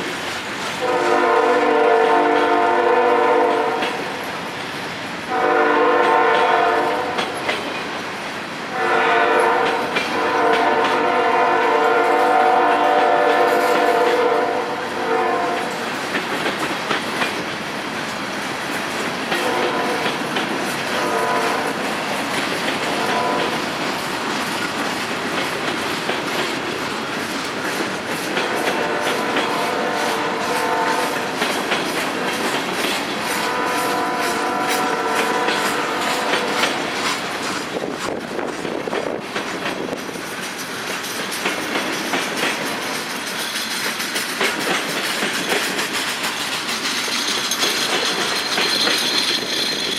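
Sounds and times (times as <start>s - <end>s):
train wheels clattering on rails: 0.0s - 49.9s
locomotive air horn blasts: 0.8s - 4.0s, 5.3s - 7.2s, 8.7s - 15.8s, 19.4s - 20.1s, 21.0s - 21.8s, 22.9s - 23.6s, 28.4s - 31.3s, 33.3s - 36.8s.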